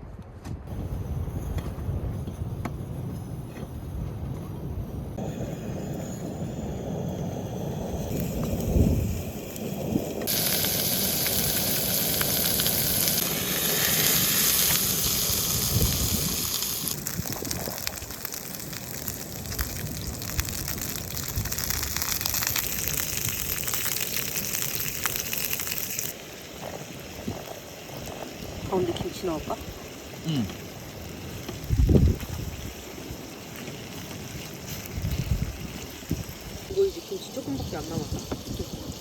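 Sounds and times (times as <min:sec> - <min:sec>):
meat sizzling in a pan: 0:05.2 - 0:39.0.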